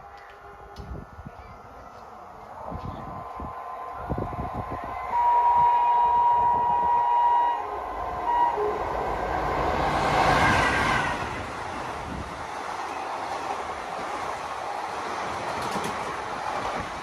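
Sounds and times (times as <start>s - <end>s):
locomotive rushing past: 2.6s - 17.0s
locomotive horn: 3.9s - 10.8s.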